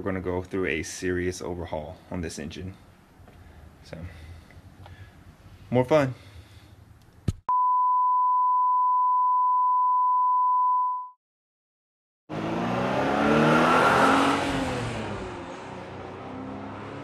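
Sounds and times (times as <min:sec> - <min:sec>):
high-pitched test-tone beep: 0:07.5 - 0:11.2
car engine revving: 0:12.3 - 0:17.0.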